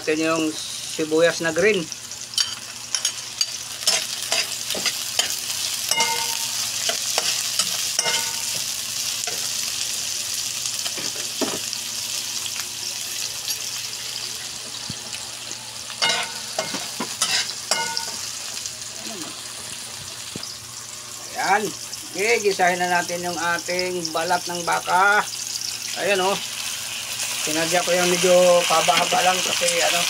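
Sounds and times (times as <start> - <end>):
vegetables sizzling in hot oil: 0.0 - 30.0
metal spatula scraping a pan: 16.0 - 18.2.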